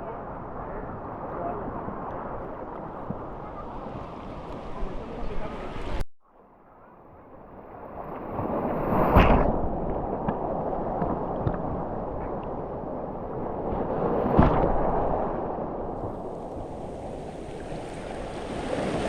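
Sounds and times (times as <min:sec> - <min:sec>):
wind on microphone: 0:07.1 - 0:19.0
sea waves breaking: 0:07.7 - 0:19.0.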